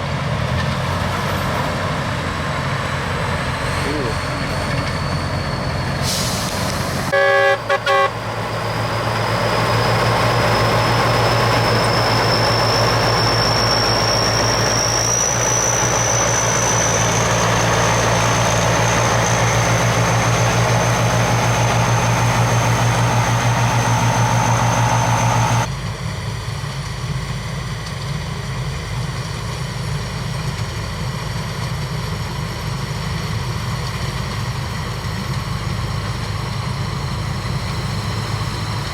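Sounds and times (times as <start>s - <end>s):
combine harvester engine running: 0.0s - 38.9s
short horn beeps: 7.1s - 8.2s
high machinery whine: 7.1s - 25.7s.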